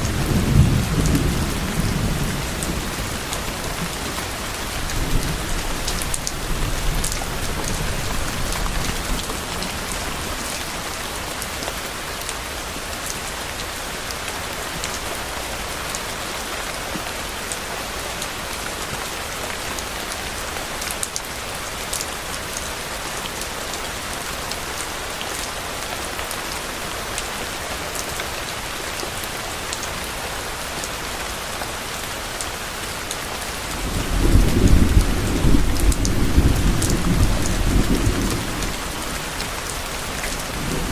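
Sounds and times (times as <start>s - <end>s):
thunder rumbling: 0.0s - 10.5s, 33.8s - 40.9s
heavy rain: 0.0s - 40.9s.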